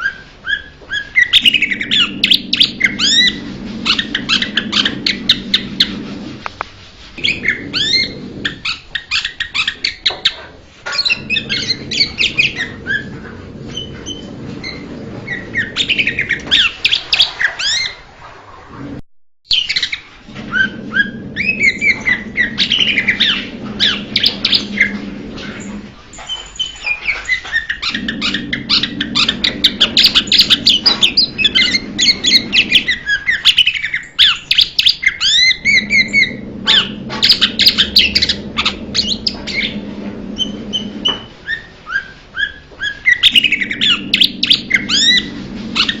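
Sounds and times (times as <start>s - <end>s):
bird singing: 19.5s - 46.0s.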